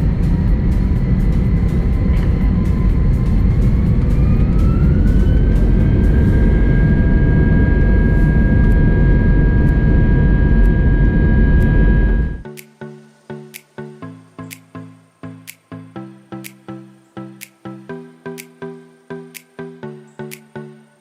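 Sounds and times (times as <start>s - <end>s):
jet engines spooling up: 0.0s - 12.4s.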